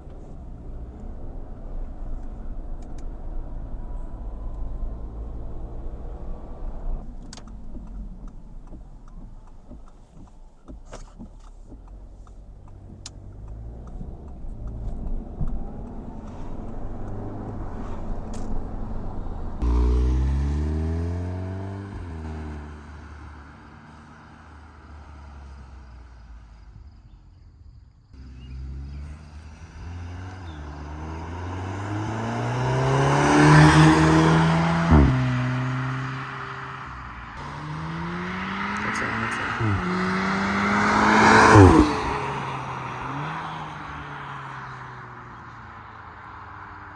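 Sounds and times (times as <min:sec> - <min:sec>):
car engine accelerating past: 0:13.0 - 0:26.7, 0:28.2 - 0:46.9.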